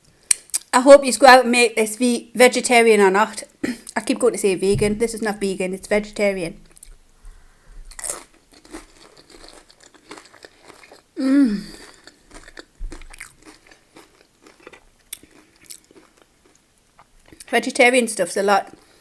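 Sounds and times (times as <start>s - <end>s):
chewing tortilla chips: 7.8s - 17.6s.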